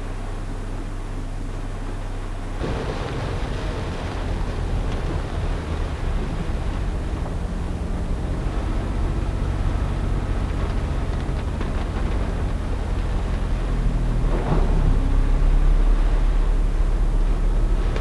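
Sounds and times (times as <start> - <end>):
car engine running: 2.4 - 18.0
heavy rain hiss: 2.6 - 14.4.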